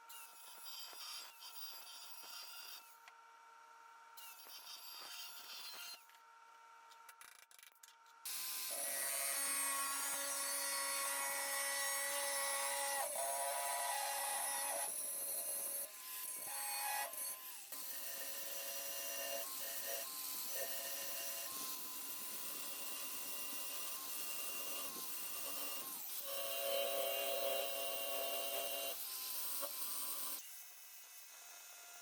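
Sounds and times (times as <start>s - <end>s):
motorised tool whining on steel: 7.9s - 32.0s.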